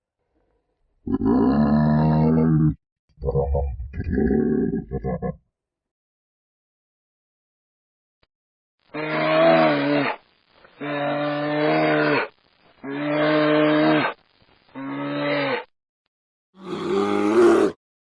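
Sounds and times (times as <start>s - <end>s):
cow mooing: 16.6s - 17.8s.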